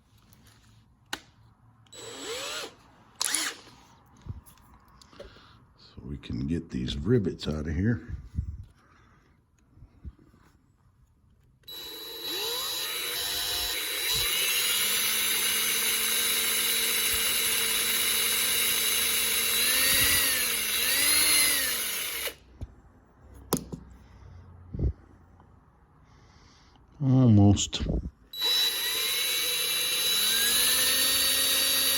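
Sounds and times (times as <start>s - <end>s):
electric drill whining: 1.9s - 3.8s, 11.6s - 22.4s, 28.3s - 31.9s.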